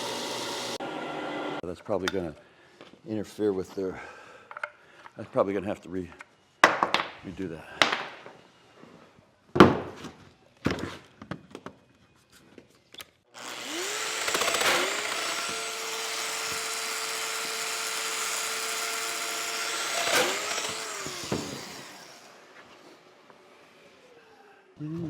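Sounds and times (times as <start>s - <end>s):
electric power tool whining: 0.0s - 1.6s, 13.4s - 23.1s.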